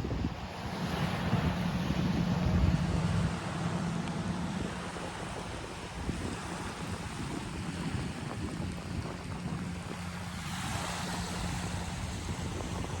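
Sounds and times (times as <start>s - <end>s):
water-like noise: 0.0s - 13.0s
wind on microphone: 0.0s - 13.0s
low hum: 0.3s - 7.2s.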